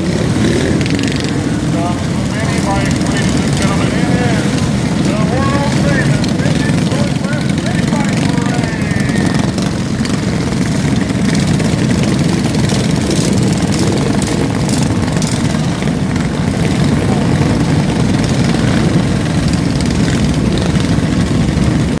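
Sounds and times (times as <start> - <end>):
mini bike engines running: 0.0 - 22.0.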